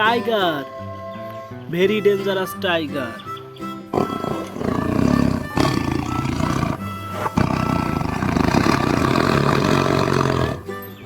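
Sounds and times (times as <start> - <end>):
background music: 0.0 - 11.0
tiger roaring and growling: 4.0 - 10.7.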